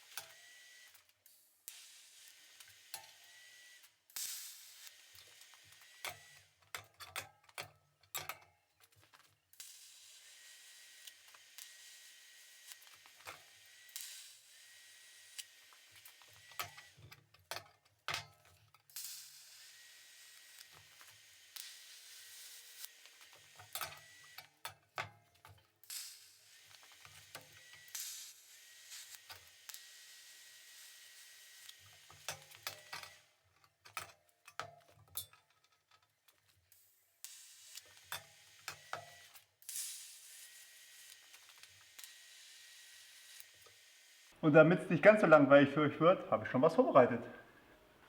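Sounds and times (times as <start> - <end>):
welding arc hissing and buzzing: 1.7 - 6.6, 9.6 - 17.6, 18.9 - 24.7, 25.8 - 33.4, 37.2 - 44.4.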